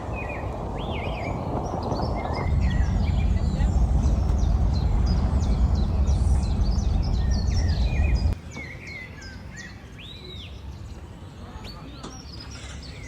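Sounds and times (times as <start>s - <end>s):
small birds chirping: 0.0s - 13.0s
loud low rumbling: 2.2s - 8.4s.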